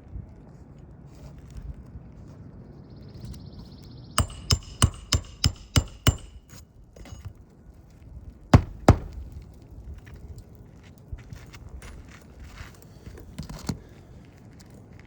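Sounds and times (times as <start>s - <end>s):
hammer striking metal pry bar: 4.2s - 7.3s, 8.6s - 9.3s.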